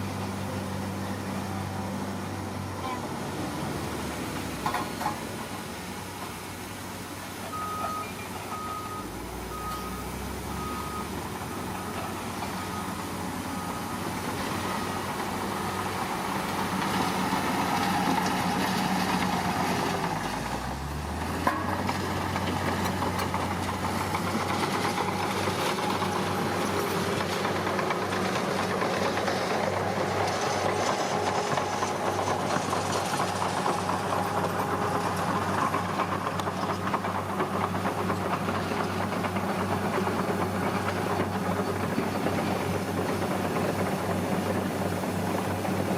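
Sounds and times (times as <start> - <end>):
heavy diesel machinery running: 0.0 - 45.9
reversing alarm beeping: 7.5 - 15.2.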